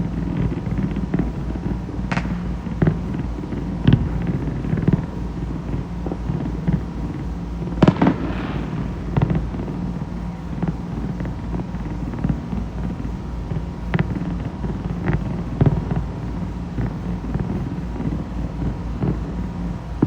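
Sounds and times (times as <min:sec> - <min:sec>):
fireworks crackle: 0:00.4 - 0:05.8, 0:07.8 - 0:11.3
fireworks bangs: 0:02.1 - 0:03.0, 0:07.8 - 0:10.8.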